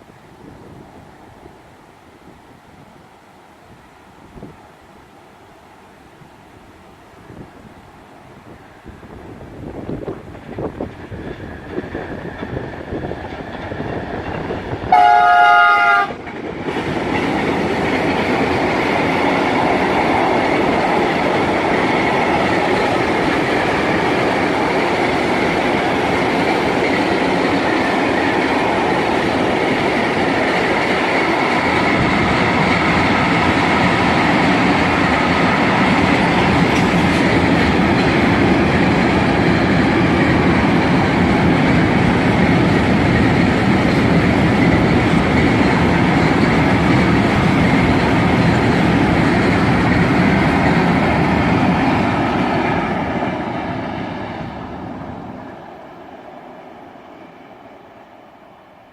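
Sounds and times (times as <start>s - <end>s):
freight train rumbling on rails: 0.0s - 58.9s
locomotive horn blast: 14.9s - 16.2s.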